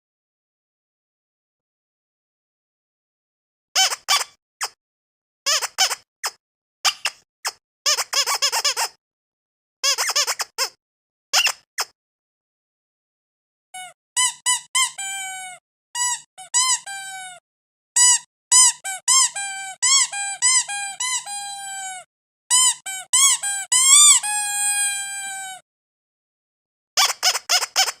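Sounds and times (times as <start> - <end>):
squeaky toy squeaking: 3.8 - 4.8, 5.5 - 9.0, 9.8 - 11.9, 13.8 - 17.4, 18.0 - 25.6, 27.0 - 28.0.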